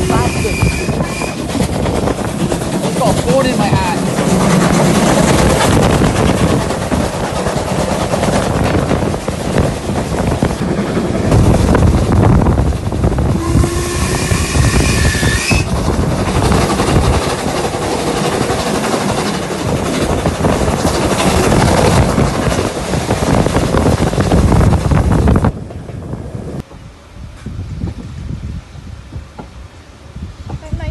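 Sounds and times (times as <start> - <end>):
train wheels rumbling on rail: 0.0 - 30.9.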